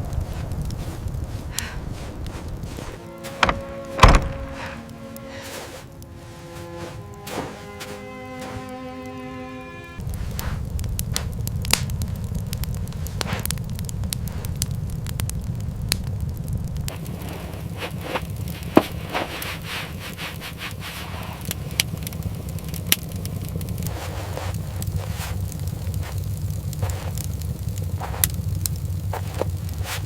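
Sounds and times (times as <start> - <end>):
low rumble: 0.0 - 6.0, 10.0 - 30.0
fire crackling and popping: 0.0 - 7.3, 10.0 - 30.0.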